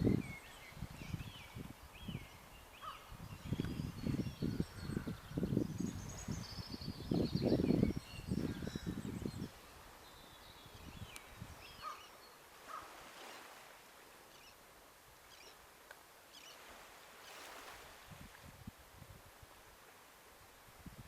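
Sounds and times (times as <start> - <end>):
wind puffs on microphone: 0.0 - 11.9, 16.6 - 19.6, 20.7 - 21.0
gentle waves: 0.0 - 21.0
small birds chirping: 0.1 - 12.9, 16.3 - 16.7
wind hiss: 16.3 - 21.0.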